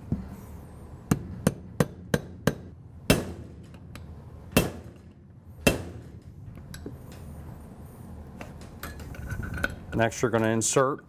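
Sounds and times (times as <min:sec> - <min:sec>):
hammer striking metal pin: 0:01.1 - 0:04.0, 0:05.6 - 0:06.2.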